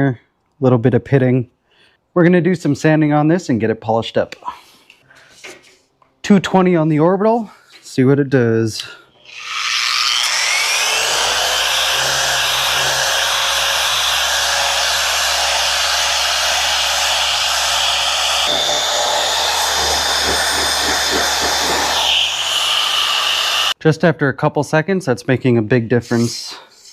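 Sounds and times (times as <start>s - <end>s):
orbital sander whining: 9.2s - 23.8s.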